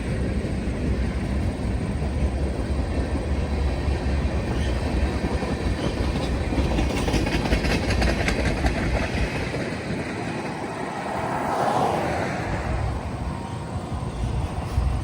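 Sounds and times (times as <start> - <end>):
train wheels clacking: 0.0 - 10.9
low train rumble: 0.0 - 15.0.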